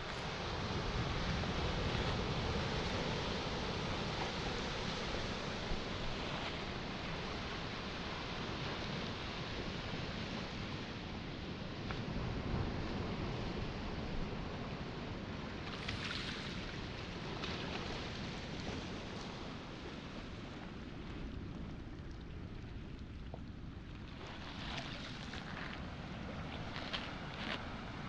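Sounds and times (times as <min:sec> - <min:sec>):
wind and surf rumble: 0:00.0 - 0:28.0
waves on pebble shore: 0:24.1 - 0:28.0.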